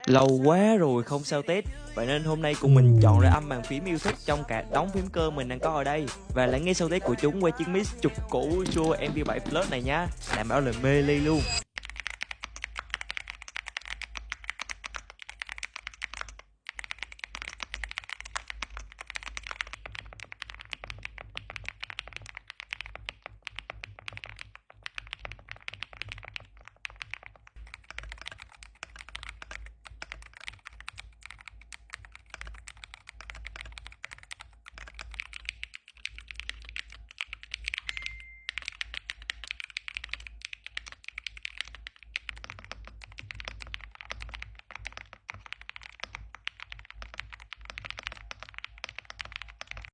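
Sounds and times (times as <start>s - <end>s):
mechanical keyboard typing: 2.7s - 3.4s, 11.7s - 49.9s.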